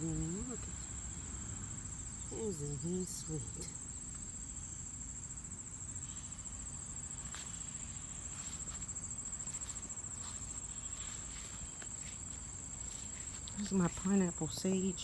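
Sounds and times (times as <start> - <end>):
crickets trilling: 0.0 - 15.0
faint ticks and rustles: 7.0 - 15.0.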